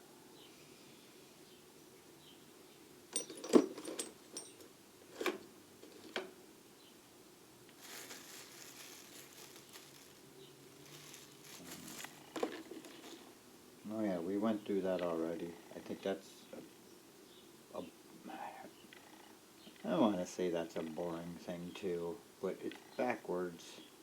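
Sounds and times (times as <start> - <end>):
metal tools clinking: 3.1 - 5.3
faint rummaging and rustling: 3.1 - 6.3, 7.7 - 13.4.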